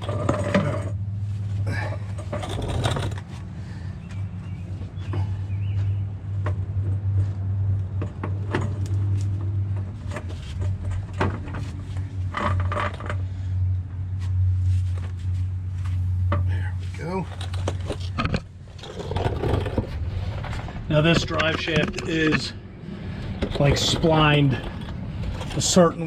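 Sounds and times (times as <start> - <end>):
steady low hum: 0.0 - 26.0
metal clinks and scrapes: 2.1 - 3.3, 16.8 - 20.6, 23.1 - 26.0.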